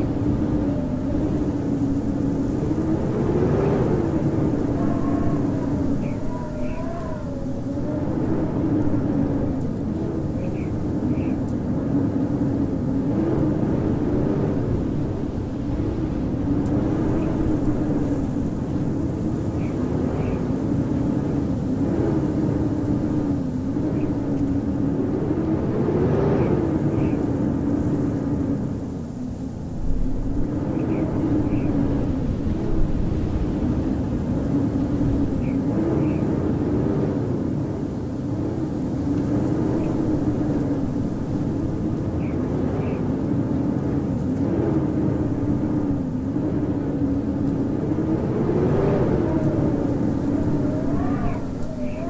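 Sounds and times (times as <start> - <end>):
howling blizzard wind: 0.0 - 52.0.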